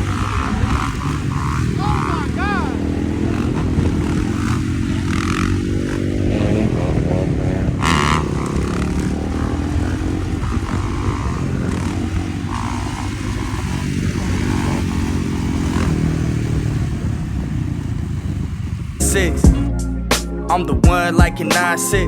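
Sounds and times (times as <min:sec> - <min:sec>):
dirt bike engine running: 0:00.0 - 0:19.7.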